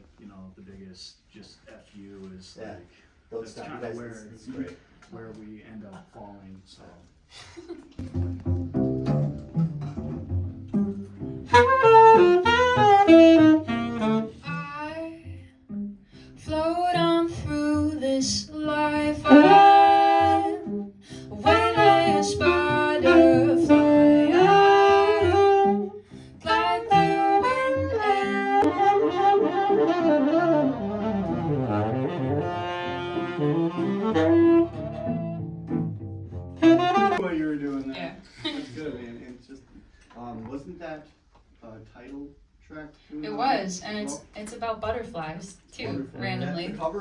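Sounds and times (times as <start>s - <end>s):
bass notes: 8.0s - 37.3s
saxophone melody: 8.0s - 37.4s.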